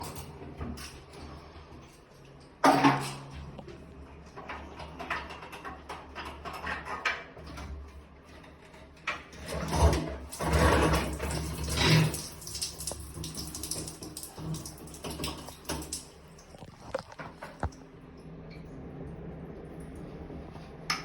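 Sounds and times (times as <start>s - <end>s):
water spraying and running: 9.5s - 17.8s.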